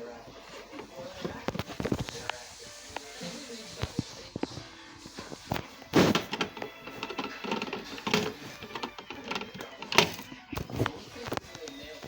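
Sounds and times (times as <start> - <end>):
mechanical clicking and clatter: 6.0 - 10.3.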